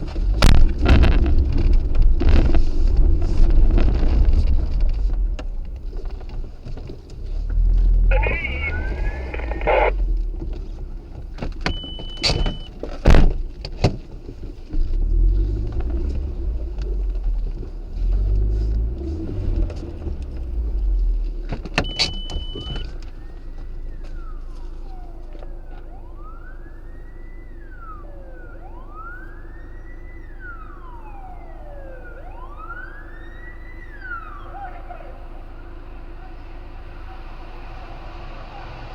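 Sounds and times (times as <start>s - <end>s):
emergency vehicle siren wailing: 0.0s - 12.7s, 15.0s - 38.9s
vehicle rumble: 0.0s - 38.9s
short high beeps: 11.7s - 12.7s, 21.8s - 22.9s.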